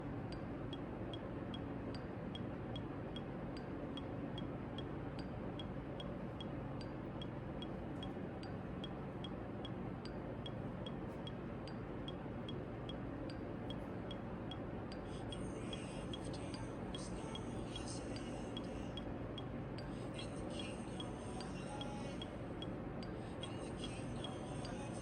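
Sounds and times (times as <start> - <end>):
steady tick: 0.3 - 19.9, 21.0 - 23.2.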